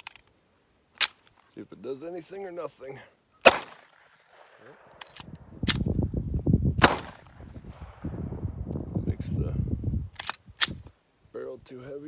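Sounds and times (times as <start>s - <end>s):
handgun shots: 3.4s - 3.9s, 6.8s - 7.3s.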